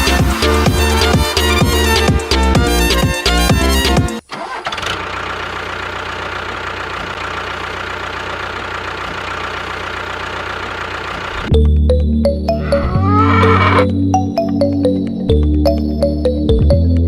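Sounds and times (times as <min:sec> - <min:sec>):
low hum: 0:00.0 - 0:03.1
small engine idling: 0:00.0 - 0:11.6.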